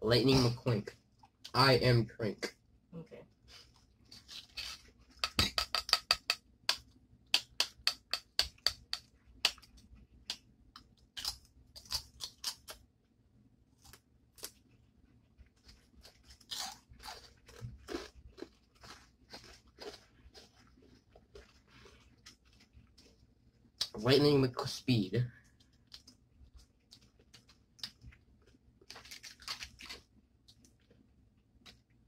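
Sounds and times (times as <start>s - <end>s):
crunching tortilla chips: 11.1s - 12.8s, 15.5s - 23.1s, 25.5s - 31.0s.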